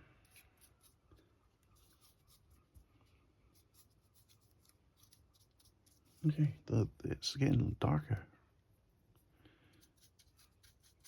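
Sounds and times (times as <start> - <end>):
paintbrush strokes: 0.0 - 6.6, 8.7 - 11.0.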